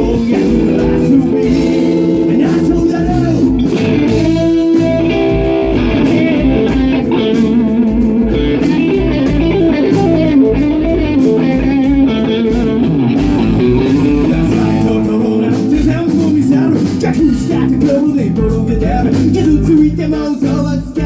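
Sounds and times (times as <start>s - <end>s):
bass guitar: 0.0s - 21.0s
electric guitar playing: 0.0s - 21.0s
steady drum beat: 0.0s - 21.0s.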